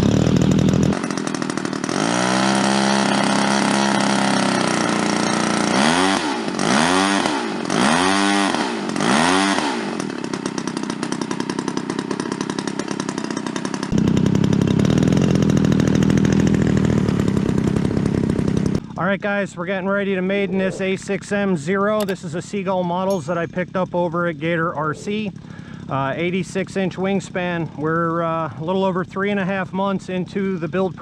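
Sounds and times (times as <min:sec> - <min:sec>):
model plane engine revving: 0:00.0 - 0:18.9.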